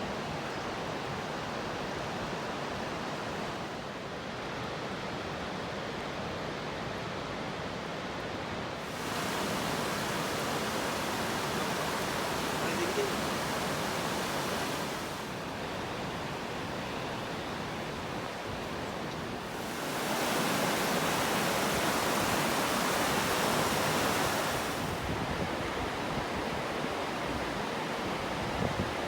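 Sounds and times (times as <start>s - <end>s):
rain hissing: 8.8s - 25.2s
running water: 8.8s - 28.6s.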